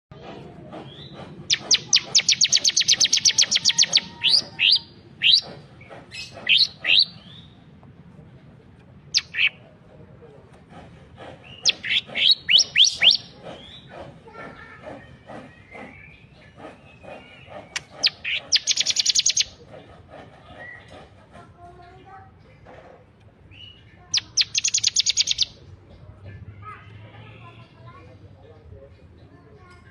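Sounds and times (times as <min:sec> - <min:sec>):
bird song with rapid trills: 0:00.8 - 0:07.6, 0:09.1 - 0:09.6, 0:11.4 - 0:19.8, 0:23.5 - 0:26.1.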